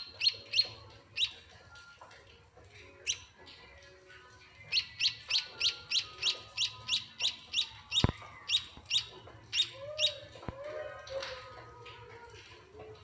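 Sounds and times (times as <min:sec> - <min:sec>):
chick begging chirps: 0:00.0 - 0:01.4, 0:04.6 - 0:10.5.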